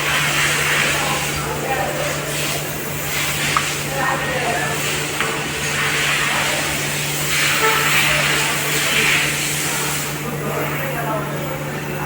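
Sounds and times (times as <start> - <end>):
hissing spray: 0.0 - 10.8
machine humming: 0.0 - 12.0.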